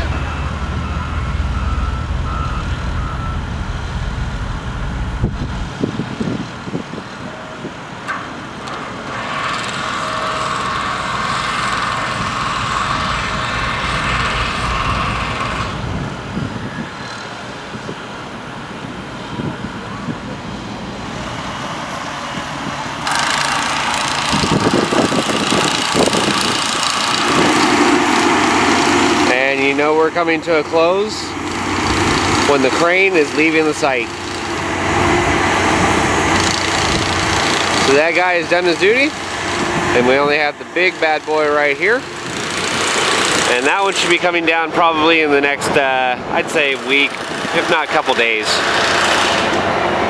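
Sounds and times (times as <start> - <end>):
mechanical noise: 0.0 - 20.1, 23.0 - 45.0
heavy machinery engines rumbling: 0.0 - 50.0.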